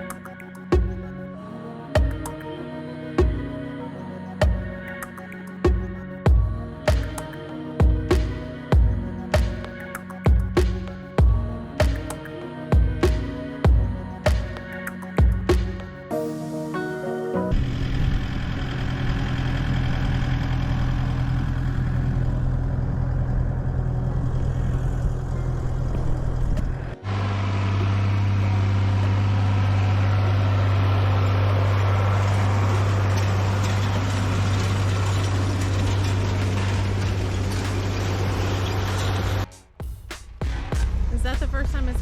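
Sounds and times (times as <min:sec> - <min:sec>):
tractor engine running: 0:04.4 - 0:16.0, 0:17.5 - 0:39.5
lower-pitched engine: 0:17.5 - 0:39.5.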